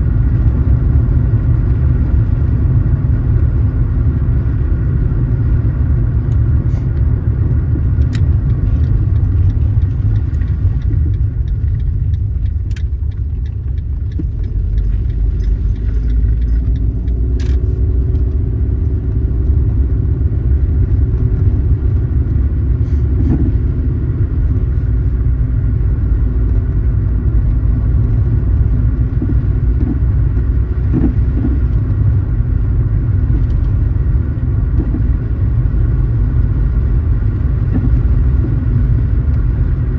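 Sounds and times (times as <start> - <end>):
road and engine rumble: 0.0 - 39.9
light clicks and rattles: 7.7 - 19.6.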